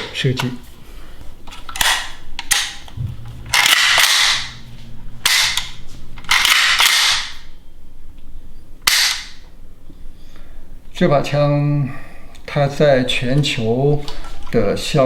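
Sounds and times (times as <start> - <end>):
rifle shots: 3.4 - 4.7.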